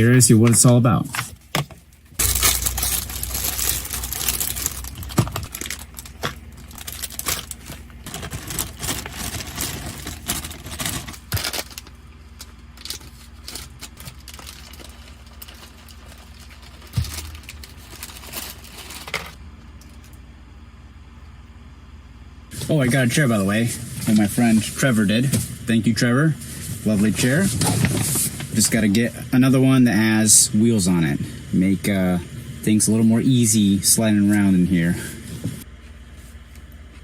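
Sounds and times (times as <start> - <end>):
packaging crinkling: 2.2 - 19.4, 26.4 - 28.9.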